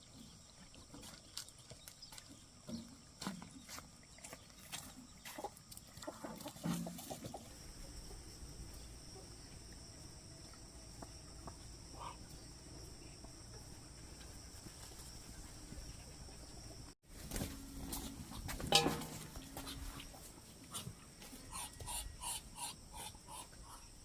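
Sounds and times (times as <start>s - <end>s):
chickens clucking: 4.8s - 8.2s.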